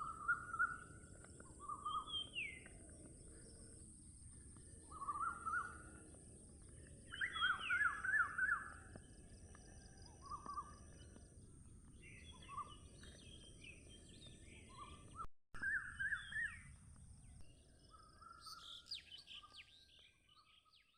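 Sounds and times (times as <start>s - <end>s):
birds chirping: 4.5s - 16.7s.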